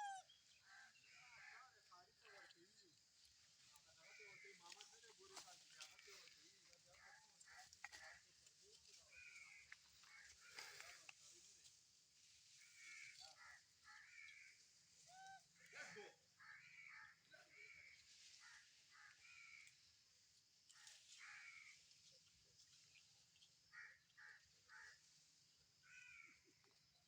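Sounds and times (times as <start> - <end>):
squeaky animal calls: 0.0 - 0.3.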